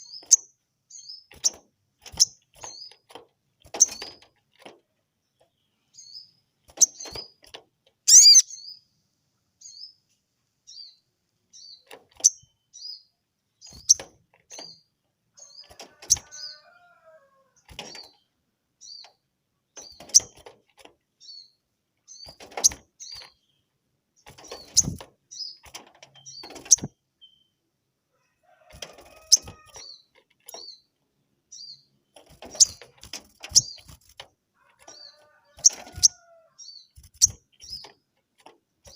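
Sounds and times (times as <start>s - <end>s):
bird chirping: 0.0s - 3.1s, 5.2s - 7.4s, 8.1s - 16.7s, 17.6s - 20.5s, 21.1s - 27.7s, 29.2s - 38.1s
wing flutters: 32.2s - 36.3s, 36.9s - 38.9s.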